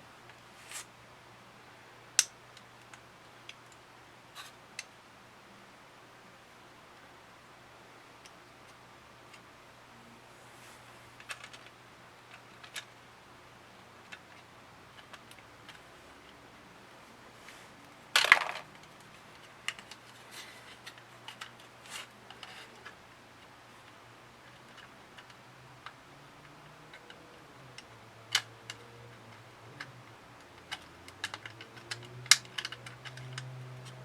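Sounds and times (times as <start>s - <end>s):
scrape or rustle: 0.5s - 0.9s, 20.2s - 20.9s
light clicks and taps: 18.8s - 34.0s.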